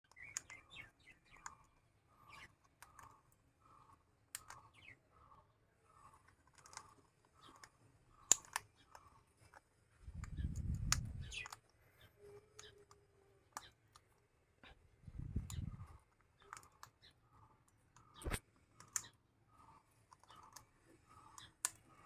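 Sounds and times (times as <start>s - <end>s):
beak clicks: 0.1s - 14.2s, 15.2s - 17.1s, 17.9s - 22.0s
lovebird chirping: 10.2s - 13.8s.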